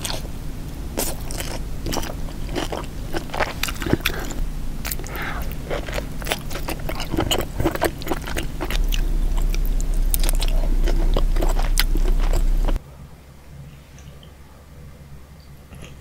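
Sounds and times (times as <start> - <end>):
low hum: 0.0 - 16.0
wet chewing and lip smacking: 1.0 - 12.8.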